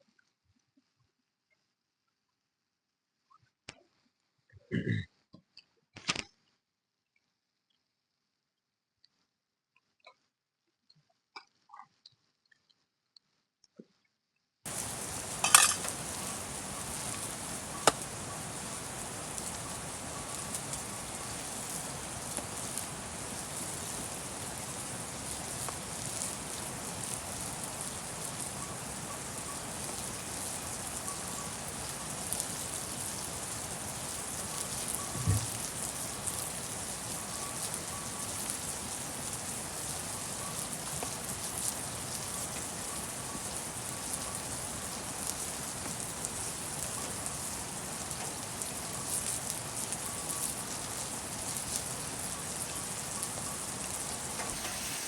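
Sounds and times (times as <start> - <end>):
steady rain falling: 14.7 - 55.0.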